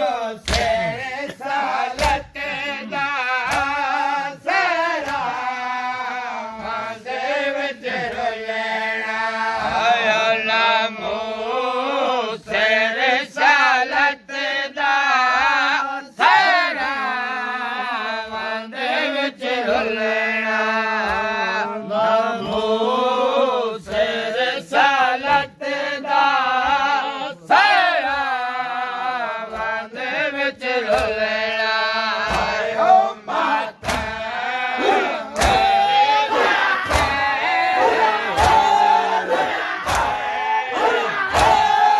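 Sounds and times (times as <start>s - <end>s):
men chanting a lament: 0.0s - 41.9s
chest-beating slaps: 0.4s - 4.0s, 4.6s - 5.4s, 30.8s - 31.3s, 32.2s - 41.9s.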